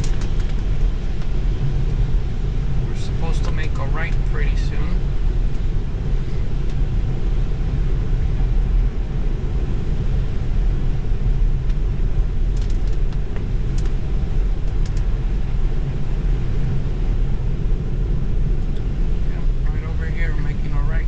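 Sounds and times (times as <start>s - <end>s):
rain: 0.0s - 21.0s
tyre and road noise on wet road: 0.0s - 21.0s.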